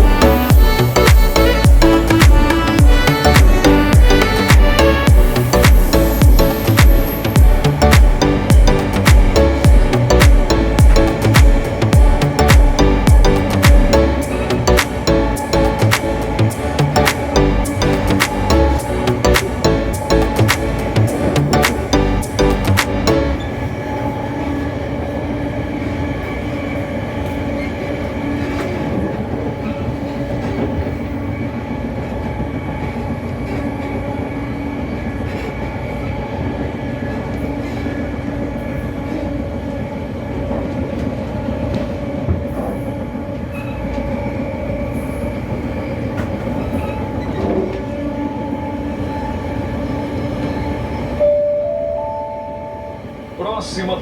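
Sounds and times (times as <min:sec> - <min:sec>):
short chime of tones: 0:00.0 - 0:23.4, 0:51.2 - 0:53.2
train rumbling from inside carriage: 0:00.0 - 0:54.0.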